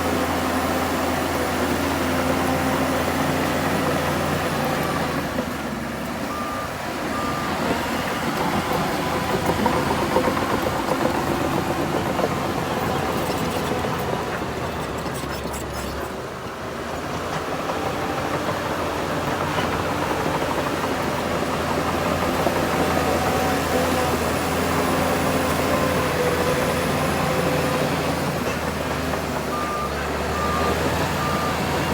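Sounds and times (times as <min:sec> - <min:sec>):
heavy diesel machinery running: 0:00.0 - 0:31.9
reversing alarm beeps: 0:06.3 - 0:08.0, 0:29.5 - 0:31.8.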